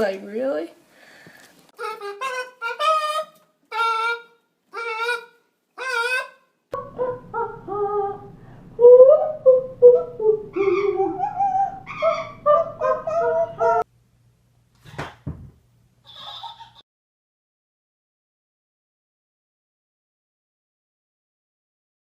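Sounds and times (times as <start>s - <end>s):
low background hum: 6.8s - 16.8s.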